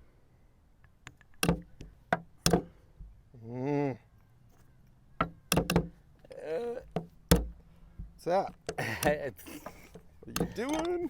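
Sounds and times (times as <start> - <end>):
person humming a groan: 3.3 - 4.1, 6.2 - 7.0.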